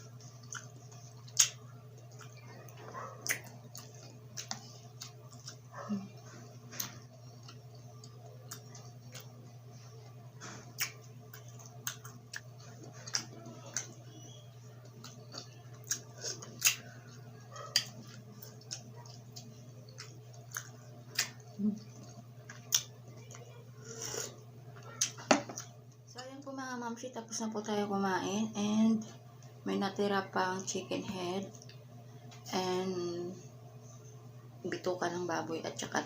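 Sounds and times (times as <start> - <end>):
chewing with wet mouth smacks: 0.0 - 23.5
steady low hum: 0.0 - 36.0.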